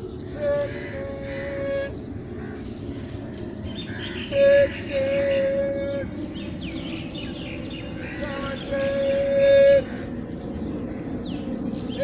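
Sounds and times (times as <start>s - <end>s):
birds chirping: 0.0s - 12.0s
low traffic rumble: 0.0s - 12.0s.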